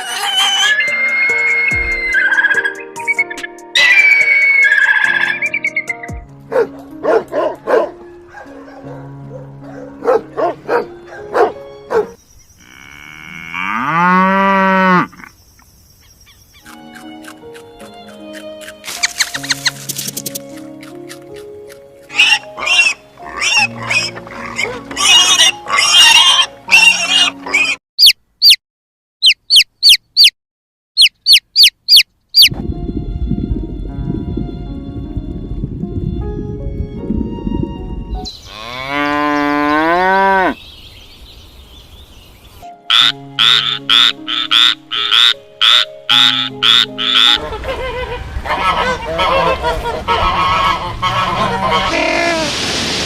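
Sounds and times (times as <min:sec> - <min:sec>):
background music: 0:00.0 - 0:12.2, 0:16.6 - 0:27.8, 0:32.5 - 0:40.5, 0:42.6 - 0:52.5
frog croaking: 0:42.9 - 0:47.4
loud animal calls: 0:42.9 - 0:52.5.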